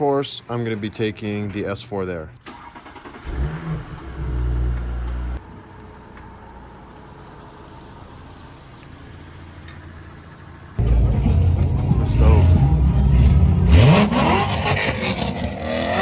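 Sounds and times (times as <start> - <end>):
car engine running: 3.2 - 16.0.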